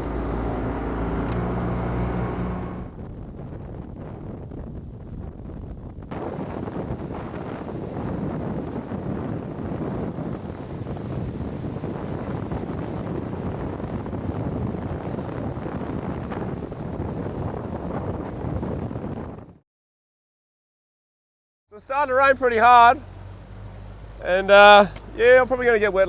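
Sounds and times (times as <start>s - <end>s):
boat motor: 0.0s - 2.9s, 21.8s - 26.0s
wind on microphone: 0.0s - 19.6s
rushing water: 6.1s - 18.5s, 21.8s - 26.0s.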